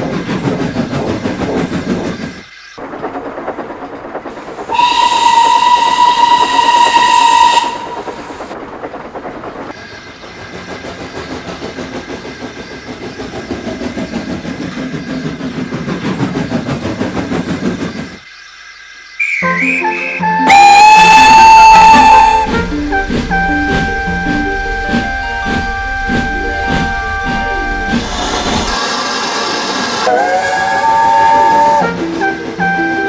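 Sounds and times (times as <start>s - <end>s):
train running on rails: 0.0s - 33.0s
locomotive whistle blast: 4.7s - 8.1s, 19.2s - 33.0s.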